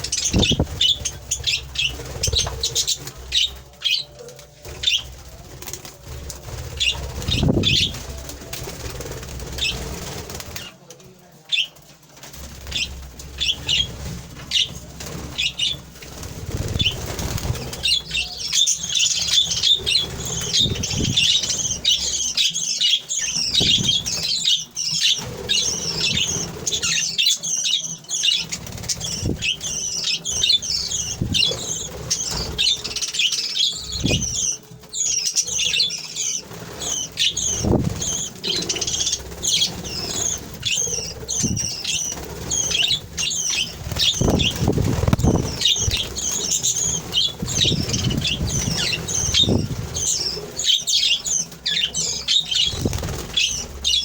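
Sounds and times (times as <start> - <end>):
wing flutters and thuds: 0.0 - 3.8, 4.6 - 10.7, 12.1 - 22.2, 33.8 - 35.6, 36.2 - 51.7, 52.4 - 54.0
budgerigars chirping: 0.0 - 4.1, 12.7 - 54.0.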